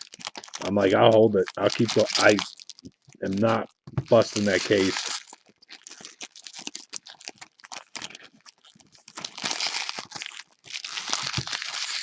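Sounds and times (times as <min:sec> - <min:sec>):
card pack wrappers crinkling: 0:00.0 - 0:12.0
cards clicking and rustling: 0:03.9 - 0:04.9.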